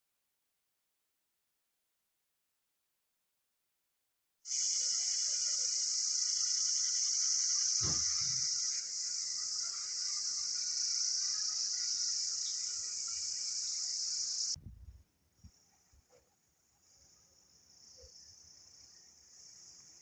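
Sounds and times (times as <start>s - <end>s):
insects shrilling: 4.5s - 14.6s
low thump: 7.8s - 8.4s, 14.6s - 15.0s.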